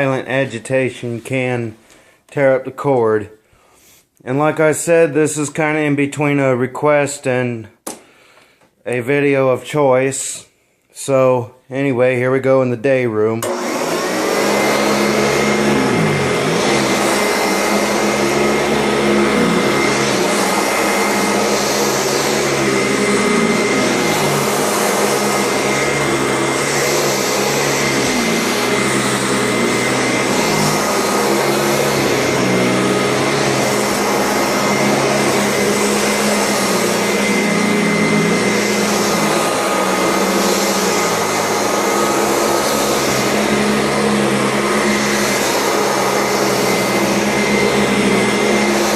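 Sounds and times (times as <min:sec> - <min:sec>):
vacuum cleaner motor whine: 0:13.4 - 0:48.9.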